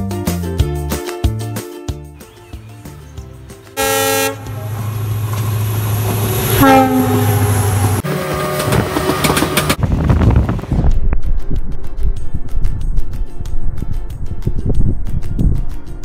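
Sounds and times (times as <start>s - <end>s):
locomotive horn: 3.8s - 5.2s, 6.4s - 9.6s
wheel clatter of passing coaches: 4.4s - 6.5s, 7.8s - 9.9s.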